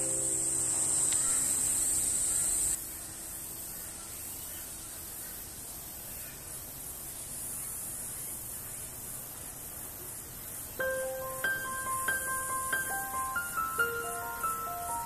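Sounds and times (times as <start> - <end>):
high-pitched insect buzz: 0.0 - 4.6, 10.4 - 15.0
outdoor ambience hiss: 0.0 - 15.0.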